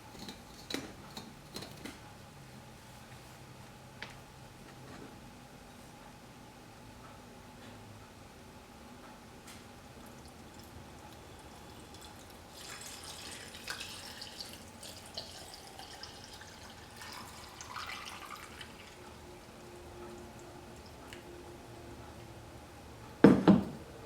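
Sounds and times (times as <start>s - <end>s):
liquid splashing and trickling: 10.0s - 19.2s.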